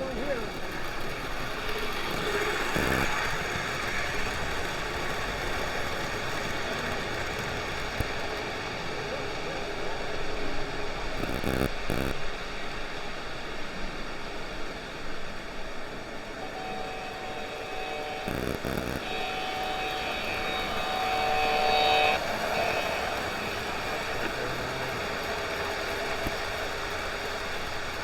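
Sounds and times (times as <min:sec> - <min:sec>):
model trains running: 0:00.0 - 0:28.0
hall background noise: 0:13.7 - 0:28.0
steady pitched tone: 0:16.3 - 0:25.1.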